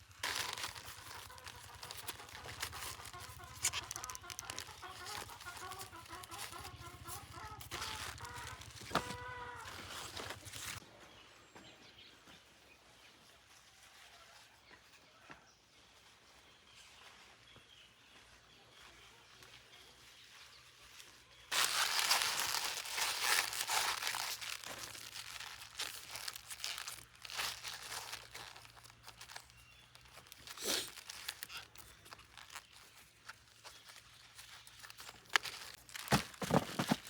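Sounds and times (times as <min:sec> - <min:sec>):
close rustling and crinkling: 0:00.0 - 0:10.8, 0:19.3 - 0:37.0.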